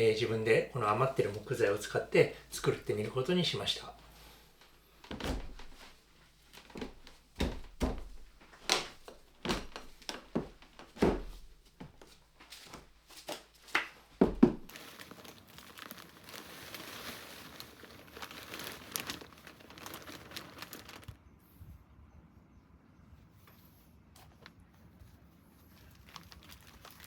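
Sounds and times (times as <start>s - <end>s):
wood pieces knocking: 5.0s - 5.9s, 6.6s - 12.1s, 13.7s - 14.7s.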